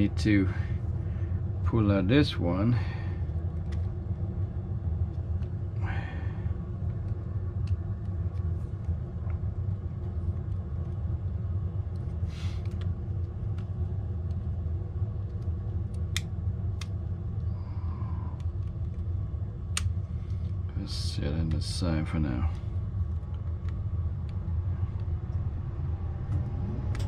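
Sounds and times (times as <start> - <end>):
steady low rumble: 0.0 - 27.0
light clicks of small parts: 3.3 - 4.2, 6.8 - 14.5, 15.2 - 17.5, 18.3 - 25.4.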